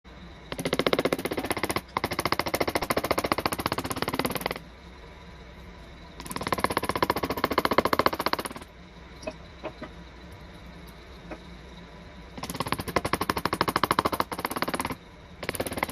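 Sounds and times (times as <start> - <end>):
power carving tool hammering wood: 0.5 - 4.6, 6.2 - 8.7, 12.4 - 15.9.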